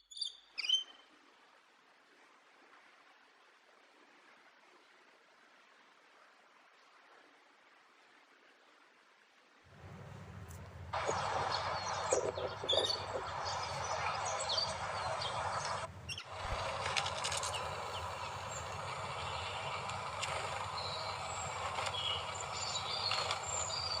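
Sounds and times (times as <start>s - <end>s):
background hiss: 9.7s - 24.0s
low hum: 9.7s - 24.0s
high bird chirps: 11.0s - 19.6s.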